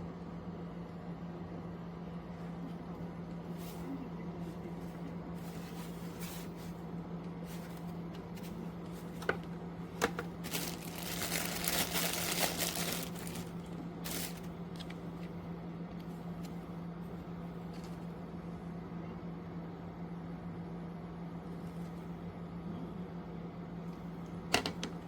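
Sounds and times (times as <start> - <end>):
box fan humming: 0.0 - 25.0
rustling and crinkling handling: 2.7 - 16.7.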